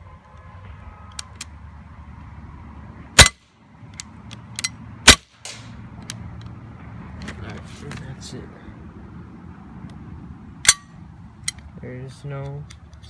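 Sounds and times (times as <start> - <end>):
airsoft pistol shots: 3.2 - 3.4, 5.1 - 5.7
pistol clicks: 3.2 - 6.5.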